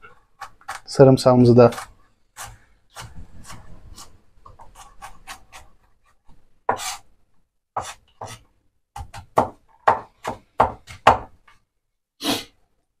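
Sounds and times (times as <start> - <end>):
knife chopping garlic: 0.4 - 0.9, 1.7 - 5.7, 6.7 - 7.0, 7.8 - 8.4, 9.0 - 11.4.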